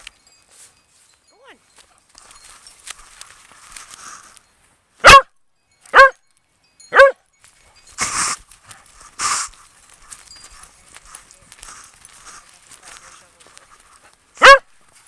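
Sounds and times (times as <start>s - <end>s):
dog barking: 5.0s - 5.3s, 5.9s - 6.2s, 6.9s - 7.2s, 14.4s - 14.7s.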